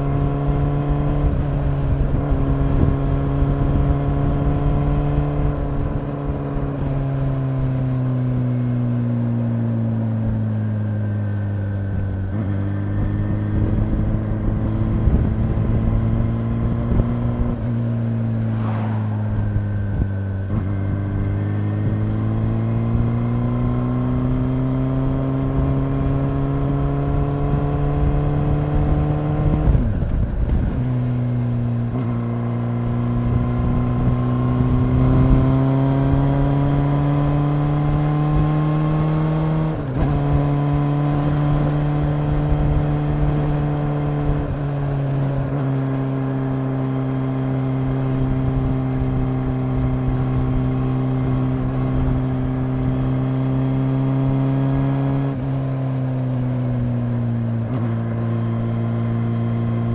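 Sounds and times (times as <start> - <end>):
wind noise on microphone: 0.0 - 7.4, 11.9 - 45.6
motorcycle engine running: 0.0 - 59.9.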